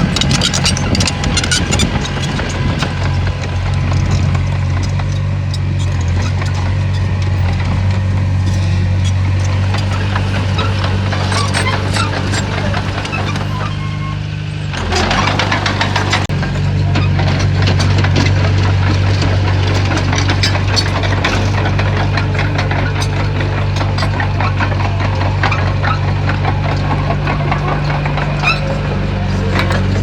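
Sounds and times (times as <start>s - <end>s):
bulldozer diesel engine running: 0.0s - 30.0s
clanks and knocks from tracks: 0.0s - 30.0s.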